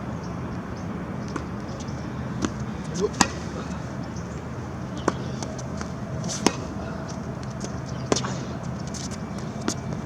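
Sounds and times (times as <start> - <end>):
tennis ball knocks: 2.9 - 3.5.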